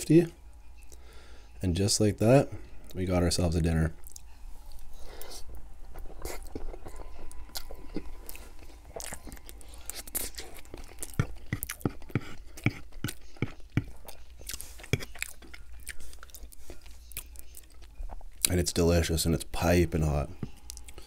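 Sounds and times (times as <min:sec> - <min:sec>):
chewing mouth sounds: 0:04.0 - 0:18.5.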